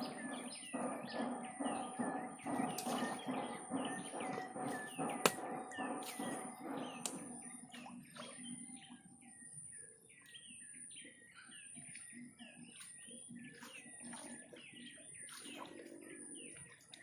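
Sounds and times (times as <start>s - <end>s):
steady high-pitched tone: 0.0s - 10.8s
low pulsing sound: 0.0s - 11.2s
birds chirping: 0.0s - 17.0s.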